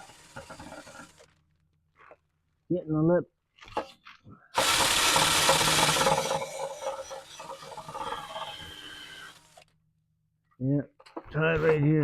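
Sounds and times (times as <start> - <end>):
grinding wheel abrasive whirr: 0.0 - 1.4, 4.6 - 9.6.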